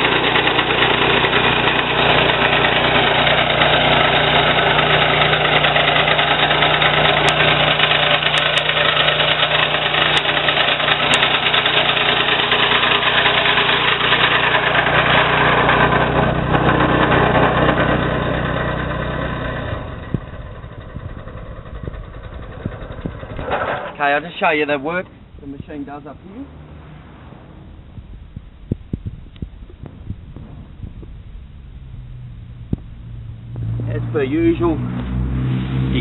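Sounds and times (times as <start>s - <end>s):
small engine running under load: 0.0s - 26.7s.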